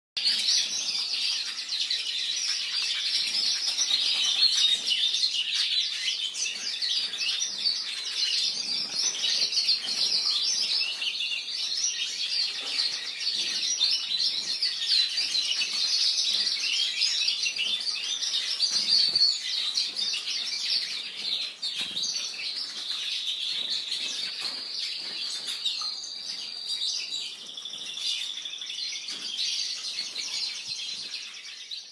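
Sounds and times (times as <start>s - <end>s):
canaries chirping and singing: 0.2s - 31.9s.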